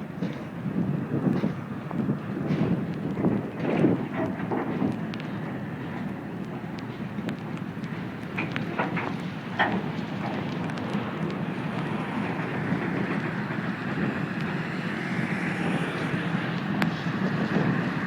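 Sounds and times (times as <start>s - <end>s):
freight train rumbling past: 8.0s - 18.0s.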